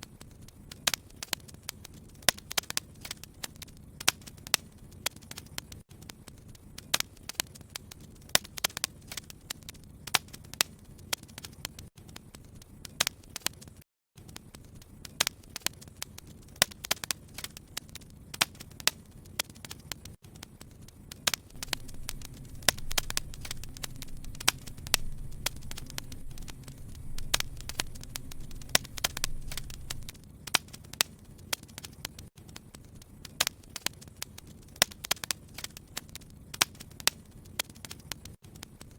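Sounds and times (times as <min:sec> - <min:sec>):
wood fire crackling: 0:00.0 - 0:38.9
sharp pops: 0:00.2 - 0:38.9
low rumble of flame: 0:14.3 - 0:38.9.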